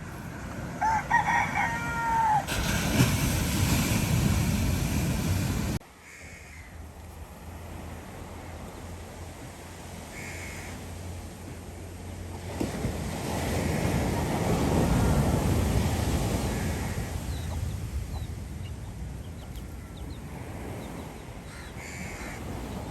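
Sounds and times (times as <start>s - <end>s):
rooster crowing: 0.7s - 2.6s.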